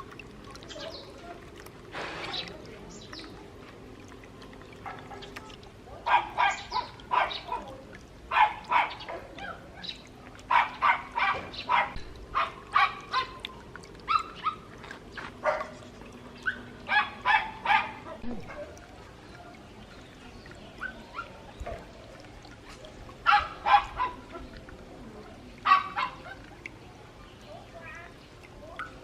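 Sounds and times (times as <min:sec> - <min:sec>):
dog barking in high yaps: 0:06.0 - 0:07.7, 0:08.3 - 0:09.6, 0:10.5 - 0:13.4, 0:14.1 - 0:14.7, 0:16.4 - 0:18.7, 0:23.2 - 0:24.2, 0:25.6 - 0:26.4.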